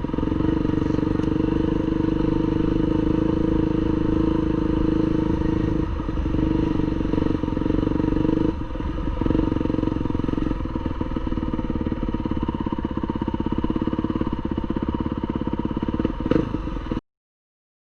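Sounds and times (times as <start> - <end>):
motocross bike engine running: 0.0 - 17.0.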